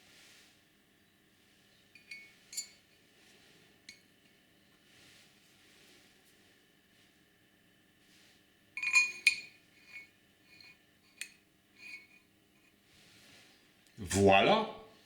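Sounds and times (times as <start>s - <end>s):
metal parts clinking: 8.8s - 9.5s.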